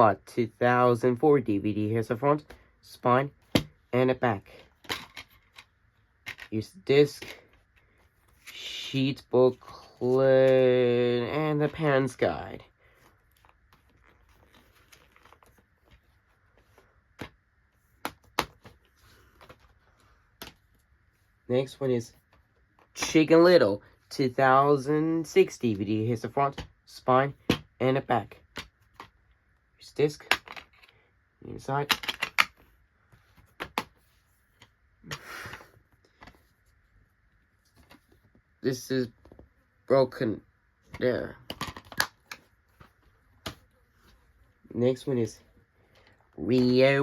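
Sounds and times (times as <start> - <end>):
paper rustling: 12.8 - 17.0.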